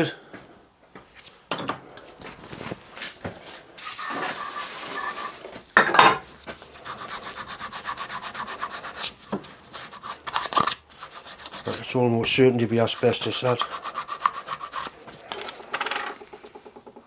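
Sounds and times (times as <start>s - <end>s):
scraping strokes on metal: 3.8s - 5.4s, 6.8s - 15.0s
steady hiss: 3.8s - 5.5s.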